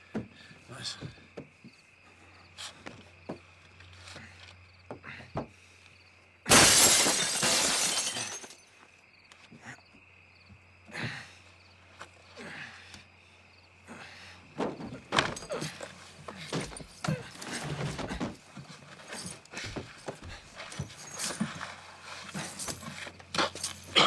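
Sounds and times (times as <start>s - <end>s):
debris knocks and crunches: 6.5s - 8.6s
glass shattering crash: 6.5s - 8.6s.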